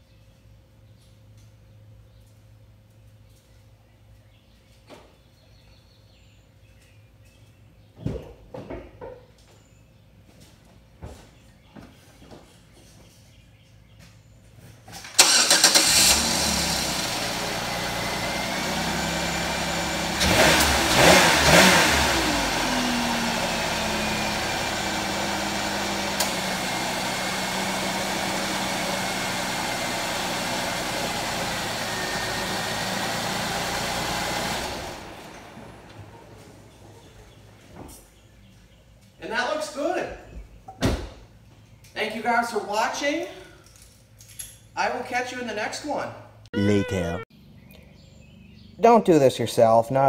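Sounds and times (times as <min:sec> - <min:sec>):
car engine starting and idling: 0:15.0 - 0:37.7.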